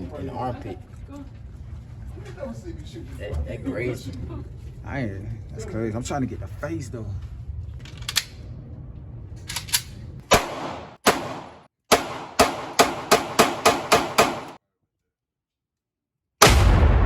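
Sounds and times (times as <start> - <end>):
gunshots: 9.6 - 14.6, 16.4 - 17.0.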